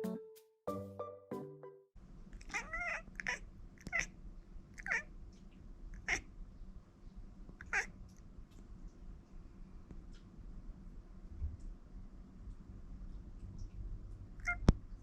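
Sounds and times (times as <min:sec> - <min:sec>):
cat meowing: 0:02.4 - 0:04.1, 0:04.8 - 0:05.1, 0:06.0 - 0:06.3, 0:07.6 - 0:07.9, 0:14.4 - 0:14.7.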